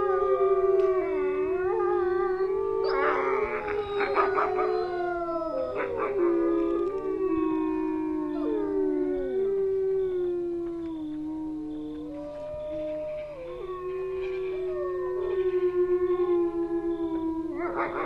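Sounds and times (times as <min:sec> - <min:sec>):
wolves howling: 0:00.0 - 0:18.0
wolves yipping: 0:02.8 - 0:09.2, 0:17.4 - 0:18.0.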